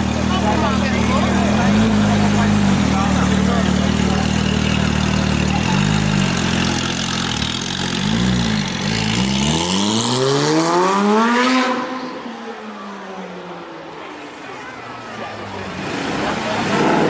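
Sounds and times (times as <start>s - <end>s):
car engine revving: 0.0s - 12.4s.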